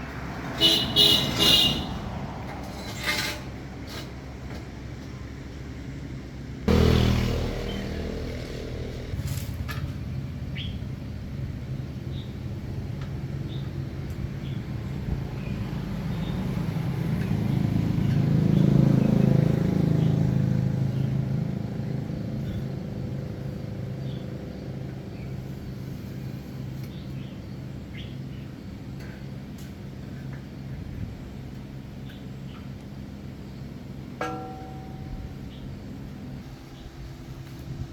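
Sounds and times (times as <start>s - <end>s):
vehicle engine passing by: 0.0s - 2.8s, 6.7s - 11.0s, 14.5s - 24.7s
birds chirping: 6.7s - 9.2s.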